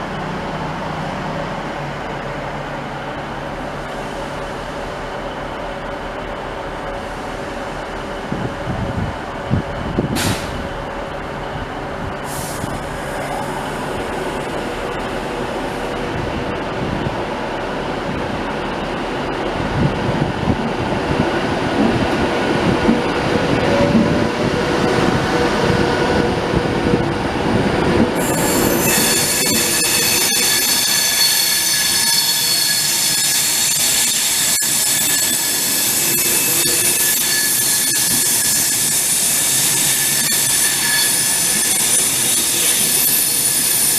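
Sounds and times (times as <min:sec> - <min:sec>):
train rumbling: 0:00.0 - 0:43.9
wheels squealing against rails: 0:28.1 - 0:43.9.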